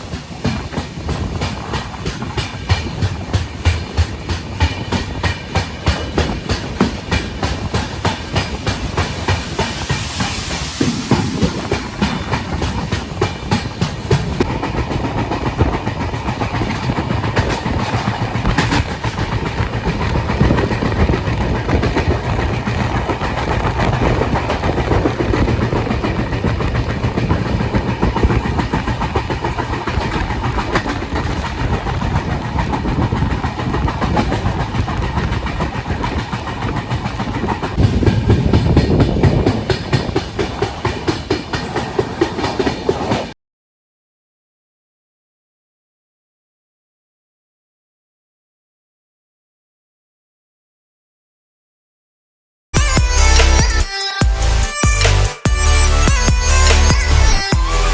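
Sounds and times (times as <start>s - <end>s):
train rumble and rush: 0.0s - 43.4s, 52.8s - 57.9s
train wheels clattering over rails: 0.0s - 43.4s.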